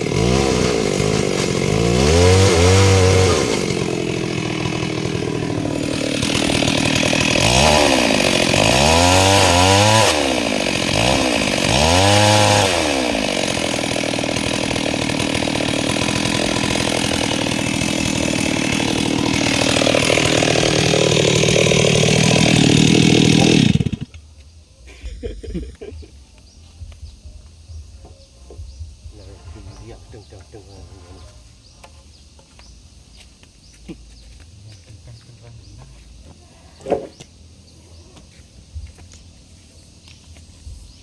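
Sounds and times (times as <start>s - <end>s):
chainsaw revving and sawing wood: 0.0s - 24.2s.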